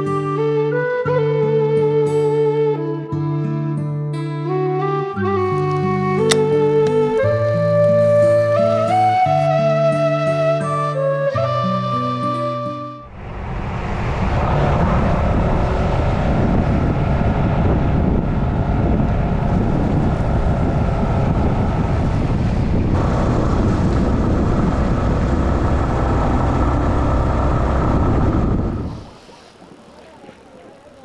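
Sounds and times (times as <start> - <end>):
wind noise on microphone: 13.1 - 31.0.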